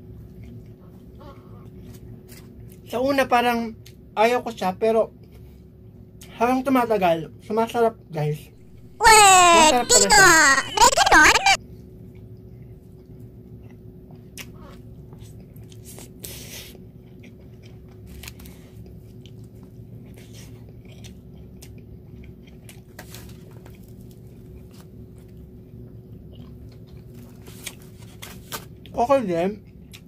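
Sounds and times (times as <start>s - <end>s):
person chewing: 13.5s - 28.4s.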